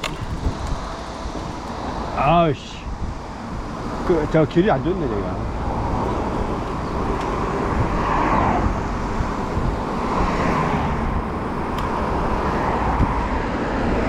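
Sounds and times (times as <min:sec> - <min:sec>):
wheels rolling on rough trail: 0:00.0 - 0:14.0
wind rushing: 0:05.4 - 0:11.7.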